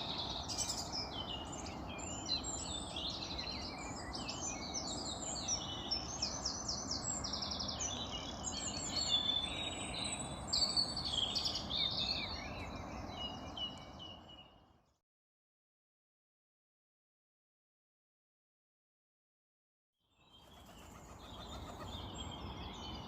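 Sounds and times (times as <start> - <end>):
songbirds singing: 0.0 - 15.0, 20.0 - 23.0.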